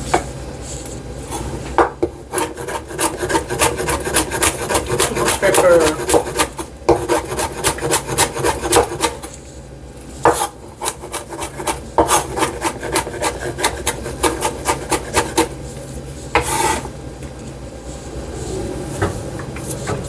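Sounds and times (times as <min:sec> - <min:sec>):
knife chopping on cutting board: 0:01.8 - 0:09.3, 0:10.2 - 0:15.5.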